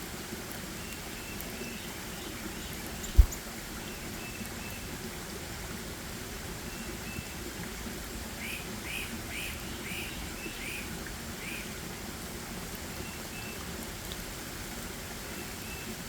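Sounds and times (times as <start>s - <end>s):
faint bird thin notes: 2.9s - 3.4s.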